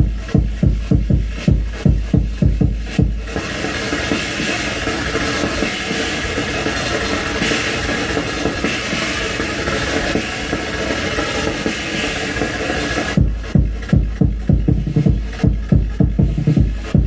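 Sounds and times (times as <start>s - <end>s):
harsh noise music: 0.0s - 17.0s.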